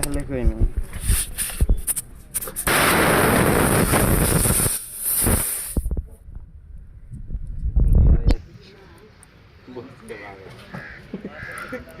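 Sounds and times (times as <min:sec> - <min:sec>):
rush of hissing air: 0:02.7 - 0:06.0.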